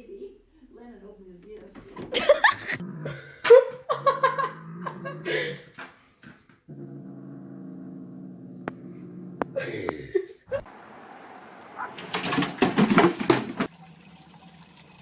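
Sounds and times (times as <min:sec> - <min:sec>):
dog growling: 0:02.6 - 0:05.7, 0:06.7 - 0:09.9.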